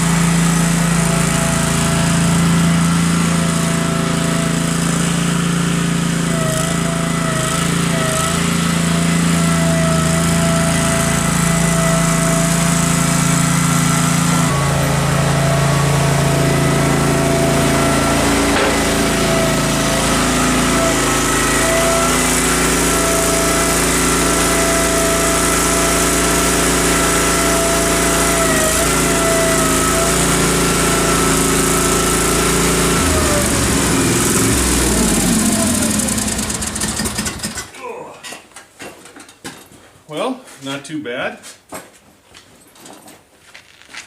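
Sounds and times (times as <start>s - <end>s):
tractor engine running under load: 0.0s - 37.7s
blade pushing snow: 5.0s - 37.3s.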